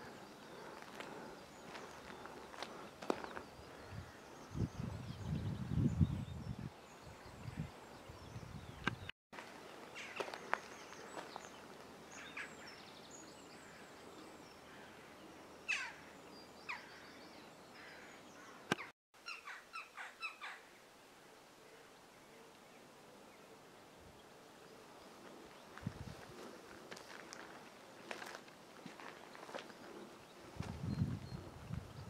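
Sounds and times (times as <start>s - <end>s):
birds chirping: 0.0s - 20.9s.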